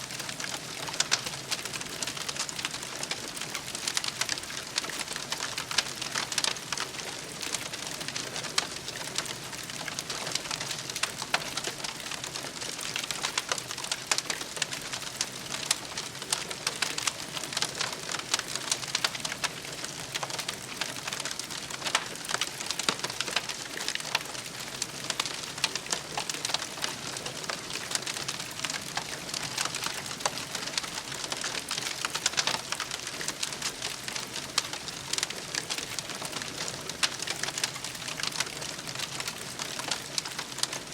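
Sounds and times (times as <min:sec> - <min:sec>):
campfire crackling: 0:00.1 - 0:40.9.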